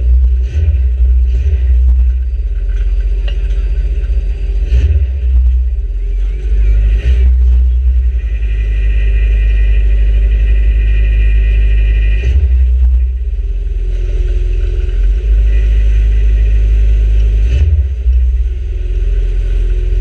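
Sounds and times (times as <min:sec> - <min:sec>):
car engine droning: 0:00.0 - 0:20.0.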